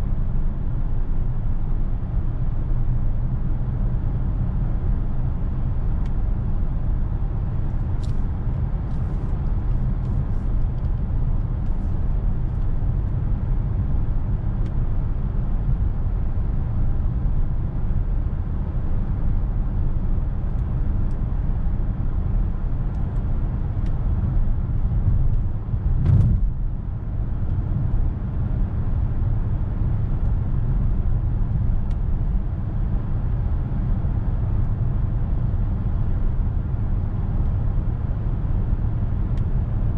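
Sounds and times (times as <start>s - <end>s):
road and tyre noise in car cabin: 0.0s - 39.9s
loud thump: 26.0s - 26.6s.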